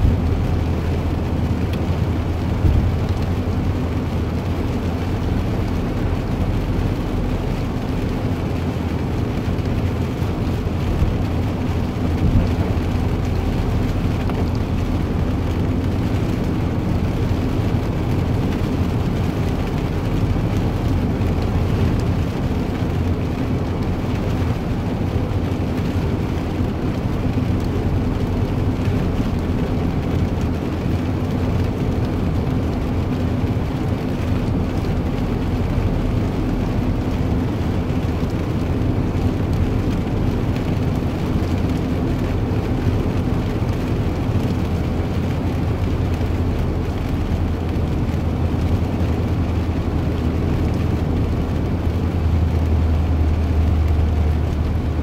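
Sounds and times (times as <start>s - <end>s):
low mechanical drone: 0.0s - 25.4s.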